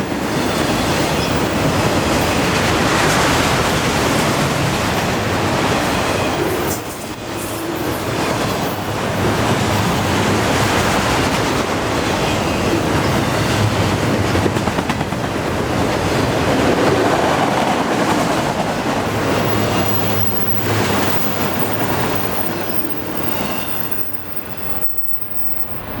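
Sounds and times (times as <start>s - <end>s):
freight train wheels clattering: 7.7s - 26.0s.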